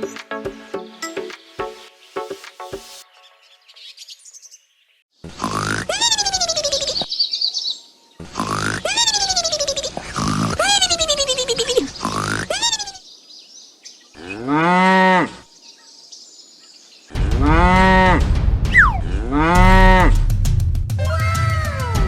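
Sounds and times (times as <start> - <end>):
cows mooing: 14.2 - 15.4, 18.8 - 20.2
high falling chirp: 18.7 - 19.1.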